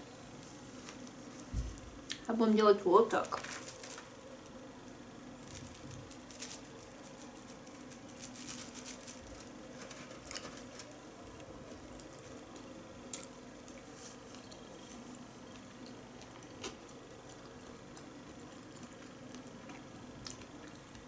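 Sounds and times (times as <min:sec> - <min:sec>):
faint steady hum: 0:00.0 - 0:21.0
wet chewing: 0:11.7 - 0:21.0.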